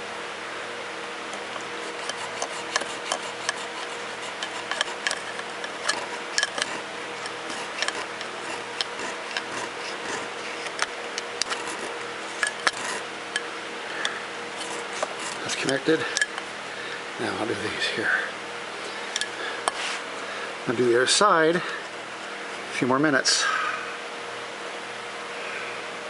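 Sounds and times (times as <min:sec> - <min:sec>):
steady low hum: 0:00.0 - 0:26.0
file scraping metal: 0:01.4 - 0:16.4.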